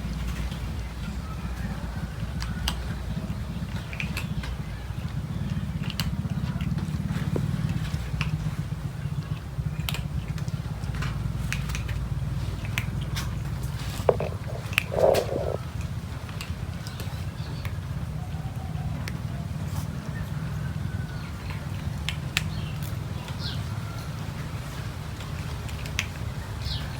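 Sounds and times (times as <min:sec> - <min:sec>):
steady low hum: 0:00.0 - 0:16.2
cats crunching food: 0:01.5 - 0:08.7, 0:09.3 - 0:17.2.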